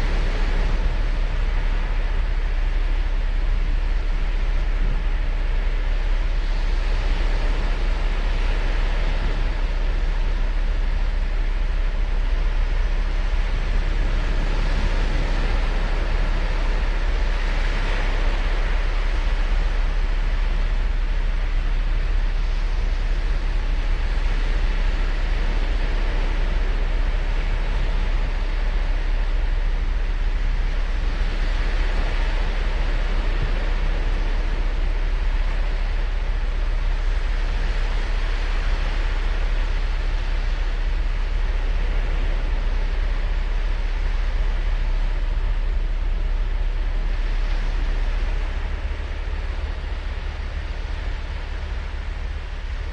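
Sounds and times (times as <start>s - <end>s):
waves breaking on a beach: 0.0s - 52.9s.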